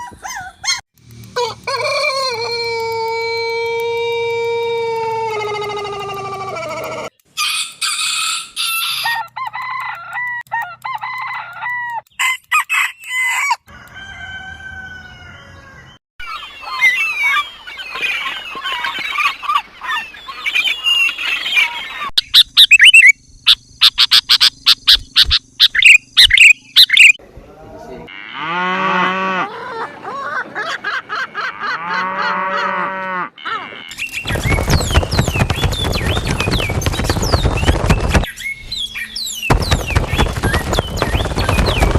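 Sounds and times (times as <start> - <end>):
rooster crowing: 1.3 - 16.0.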